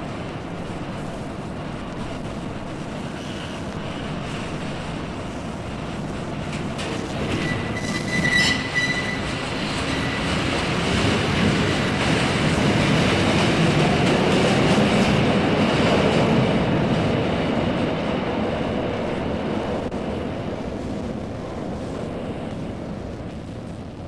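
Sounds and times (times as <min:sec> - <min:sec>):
train rumbling on rails: 0:00.0 - 0:24.0
high wheel squeal: 0:07.2 - 0:10.6.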